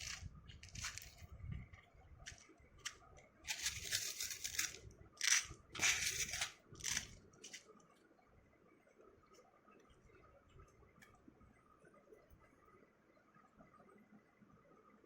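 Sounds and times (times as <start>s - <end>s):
hands scraping craft materials: 0.0s - 1.2s, 2.3s - 7.6s.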